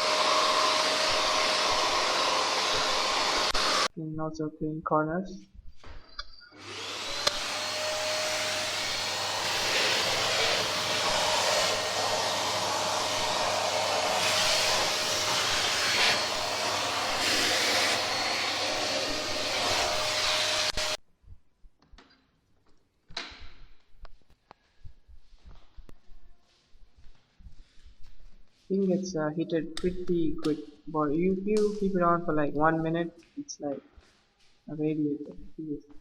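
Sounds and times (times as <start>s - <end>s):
vacuum cleaner whining suction: 0.0s - 3.9s, 6.4s - 21.0s.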